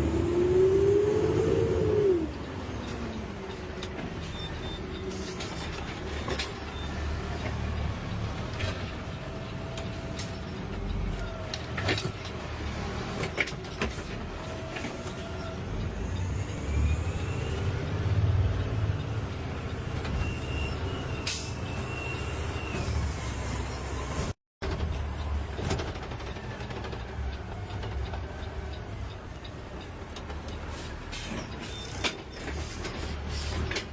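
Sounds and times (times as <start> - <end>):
high squeals: 20.1 - 23.7.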